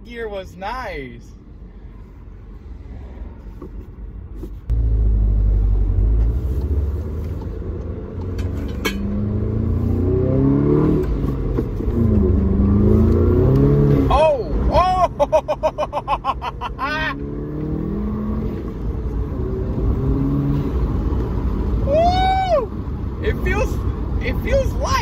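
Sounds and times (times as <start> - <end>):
car engine under full throttle: 4.7 - 22.0.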